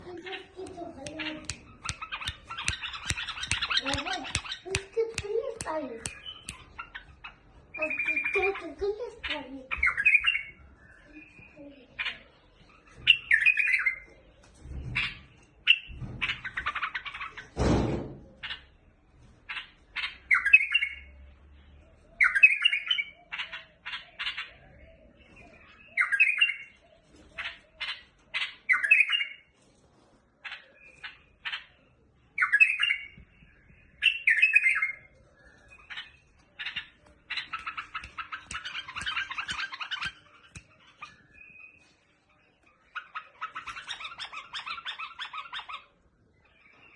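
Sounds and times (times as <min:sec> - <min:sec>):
bird chirping and whistling: 0:01.6 - 0:05.0, 0:06.0 - 0:07.0, 0:07.7 - 0:08.5, 0:09.7 - 0:11.6, 0:12.9 - 0:14.1, 0:20.3 - 0:21.1, 0:22.1 - 0:26.8, 0:28.7 - 0:29.4, 0:32.4 - 0:41.9.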